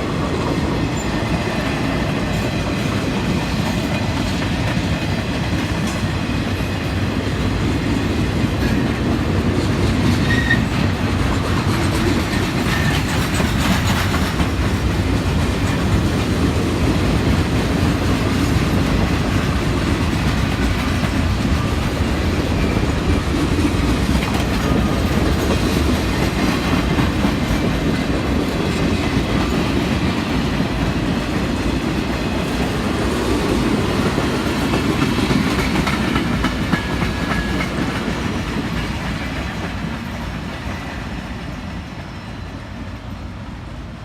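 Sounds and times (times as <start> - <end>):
train cars rumbling past: 0.0 - 44.0
wheels clicking over rail joints: 7.7 - 40.9.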